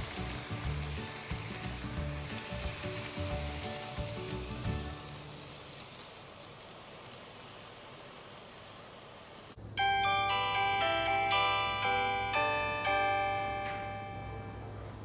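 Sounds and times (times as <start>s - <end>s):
background music: 0.0s - 5.3s, 9.8s - 14.8s
model train running on track: 0.0s - 15.0s.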